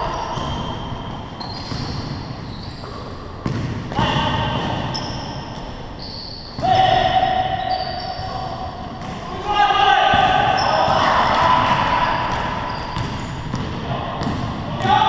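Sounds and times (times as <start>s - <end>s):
sneakers squeaking on floor: 0.0s - 9.3s, 10.1s - 14.9s
players' voices: 0.0s - 15.0s
basketball bouncing: 3.4s - 4.9s, 10.1s - 14.9s.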